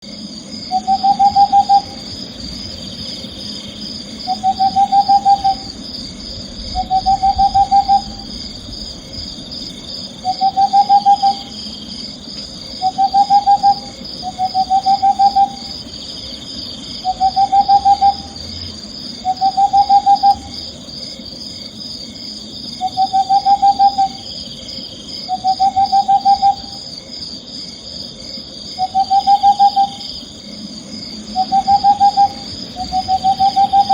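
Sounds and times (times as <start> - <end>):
high faintly pulsing background: 0.0 - 33.9
owl trilled call: 0.7 - 2.2, 4.2 - 5.8, 6.6 - 8.4, 10.2 - 11.7, 12.8 - 15.8, 17.0 - 18.4, 19.2 - 20.6, 22.8 - 24.3, 25.2 - 26.8, 28.8 - 30.0, 31.4 - 33.9.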